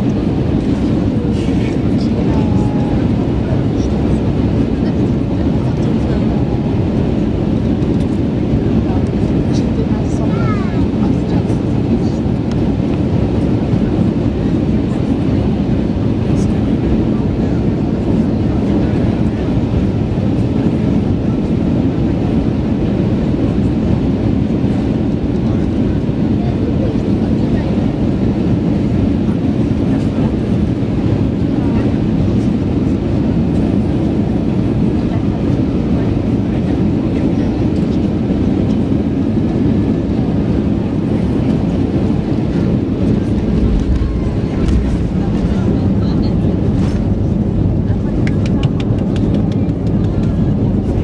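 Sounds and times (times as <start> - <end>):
airliner cabin engine rumble: 0.0 - 51.0.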